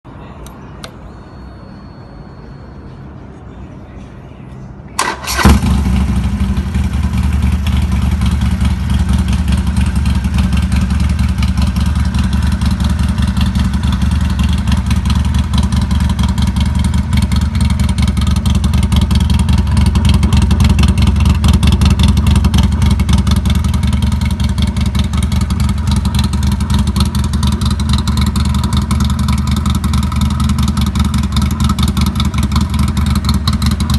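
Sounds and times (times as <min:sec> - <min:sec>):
motorcycle starter cranking: 0:05.0 - 0:06.2
motorcycle engine idling: 0:05.0 - 0:33.9.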